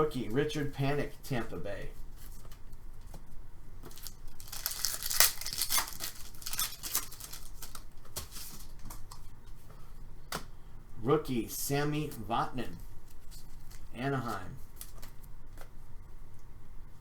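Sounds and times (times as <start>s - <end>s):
cards rustling and sliding: 3.8s - 9.3s, 12.2s - 13.9s, 14.6s - 15.7s
wrapper tearing and crinkling: 3.9s - 8.8s.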